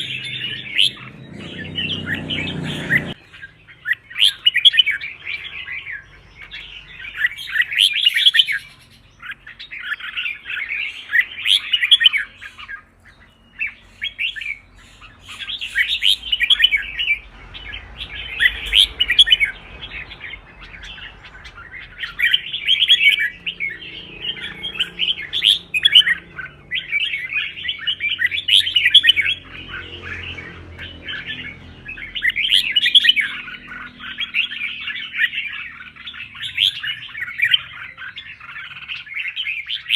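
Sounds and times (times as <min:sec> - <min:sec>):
bulbul chattering warbling song: 0:00.0 - 0:39.9.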